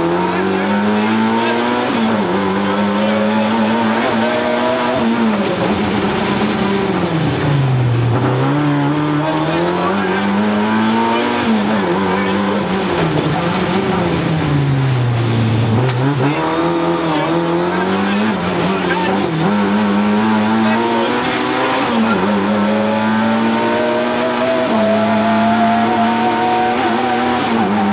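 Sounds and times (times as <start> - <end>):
rally car engine at high revs: 0.0 - 27.9.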